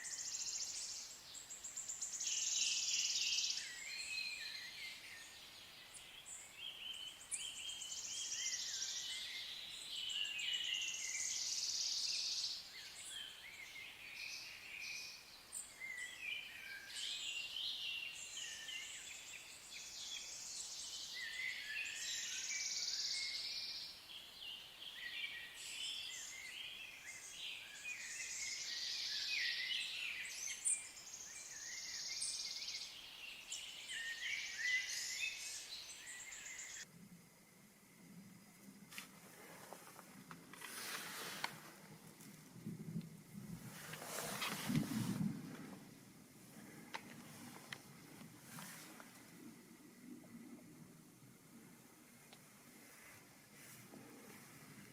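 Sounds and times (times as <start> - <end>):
songbirds singing: 0.0 - 36.9.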